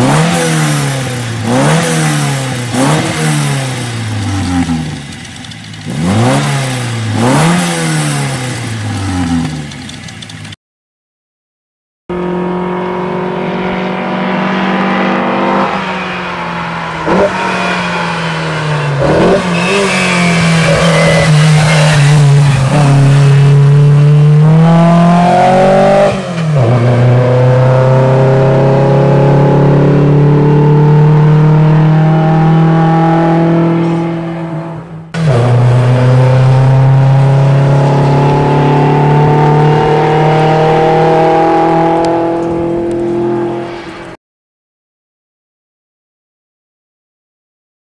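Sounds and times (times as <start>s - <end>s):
car engine accelerating: 12.1s - 44.0s.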